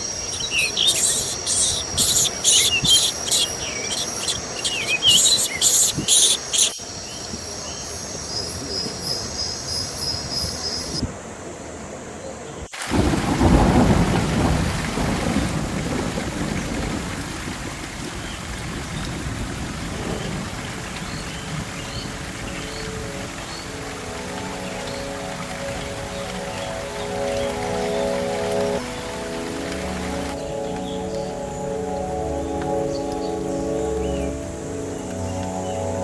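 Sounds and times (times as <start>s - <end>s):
heavy rain: 0.0s - 11.4s, 12.7s - 36.0s
steady hiss: 0.0s - 12.1s, 19.2s - 36.0s
insects chirping: 0.0s - 15.1s, 20.1s - 36.0s
thunder rumbling: 12.9s - 35.4s.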